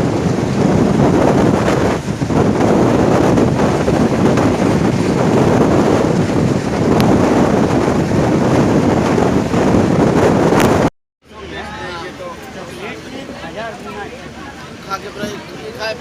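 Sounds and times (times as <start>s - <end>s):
wind on microphone: 0.0s - 10.9s.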